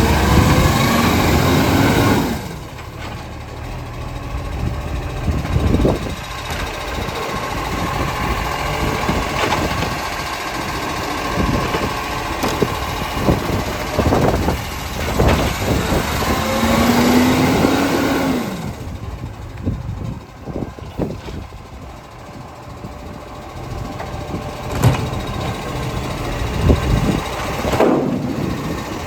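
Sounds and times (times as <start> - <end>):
garbage truck engine running: 0.0 - 29.0
clunks and bangs: 8.8 - 10.7, 11.3 - 17.8, 23.8 - 29.0
rising and falling whine: 15.3 - 19.2.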